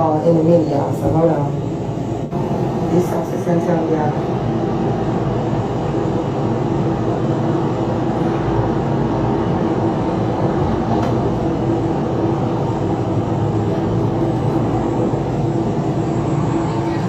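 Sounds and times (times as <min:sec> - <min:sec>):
faint hum: 0:00.0 - 0:17.0
low rumble of noise: 0:00.0 - 0:17.0.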